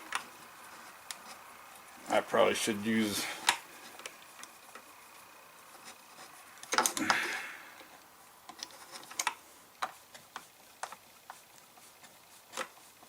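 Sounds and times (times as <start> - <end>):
hand tools clicking and tapping: 6.6 - 11.4.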